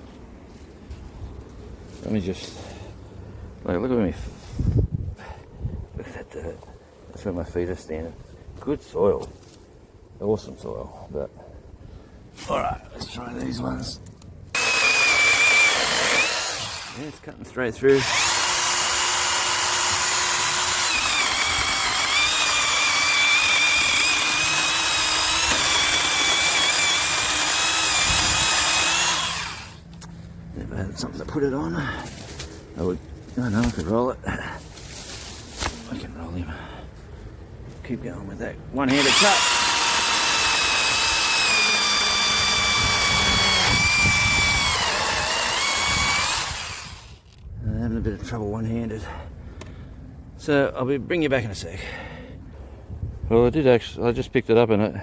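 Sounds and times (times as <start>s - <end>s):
electric chainsaw cutting wood: 14.5s - 17.2s, 17.9s - 29.8s, 38.9s - 47.3s.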